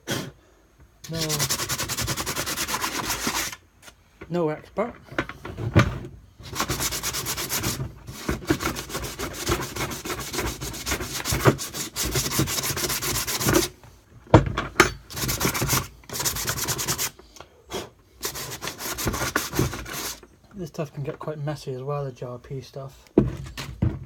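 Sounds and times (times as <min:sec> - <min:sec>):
sandpaper rubbing on plastic: 0:01.0 - 0:03.6, 0:06.4 - 0:13.8, 0:15.1 - 0:17.2, 0:18.2 - 0:20.2.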